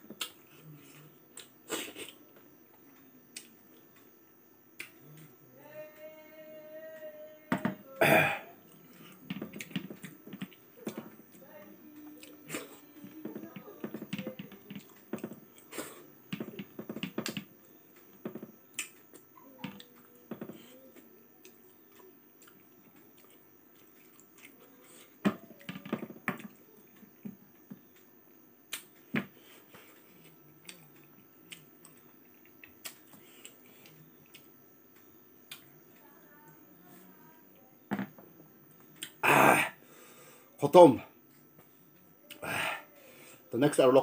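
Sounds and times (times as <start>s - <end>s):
wet chewing: 18.1s - 27.0s, 29.8s - 34.5s.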